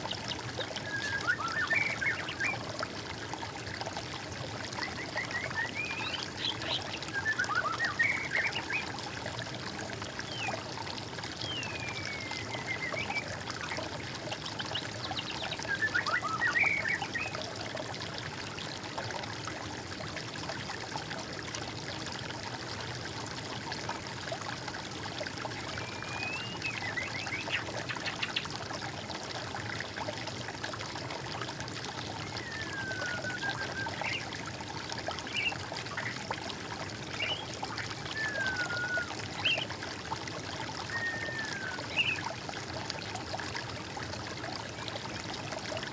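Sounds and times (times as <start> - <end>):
water trickling: 0.0 - 45.9
songbirds calling: 32.3 - 34.3, 35.2 - 36.2, 37.1 - 37.5, 38.1 - 39.7, 40.8 - 42.3.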